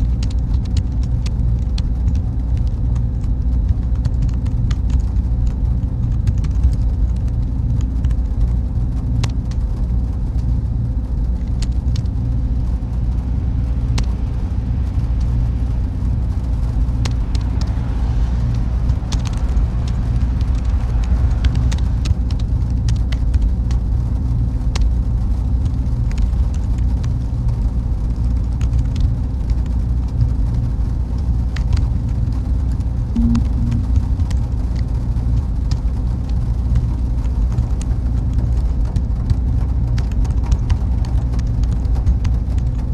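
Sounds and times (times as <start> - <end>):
cooling fans humming: 10.2 - 25.8, 33.1 - 36.0
faint steady tone: 33.2 - 34.8.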